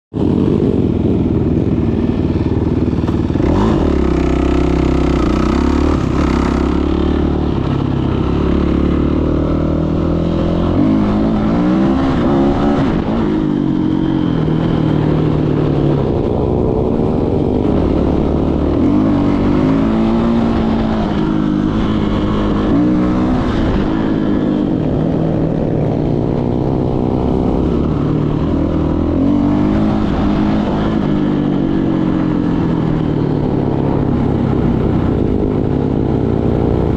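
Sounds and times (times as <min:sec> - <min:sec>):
dirt bike engine revving: 0:00.2 - 0:36.9.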